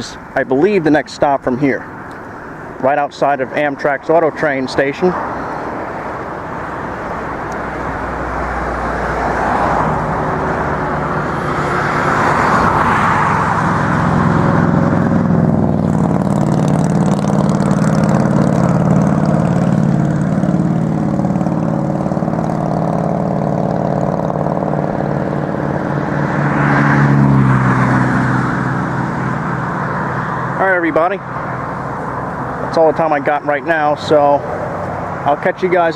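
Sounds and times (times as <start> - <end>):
engine drone: 0.0 - 35.9
passing car tyre noise: 0.0 - 35.9.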